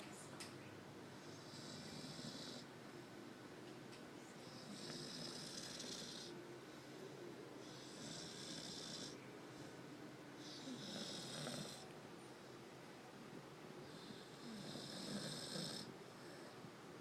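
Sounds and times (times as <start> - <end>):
dog snoring: 1.2 - 2.7, 4.4 - 6.4, 7.6 - 9.2, 10.4 - 11.9, 13.8 - 16.5.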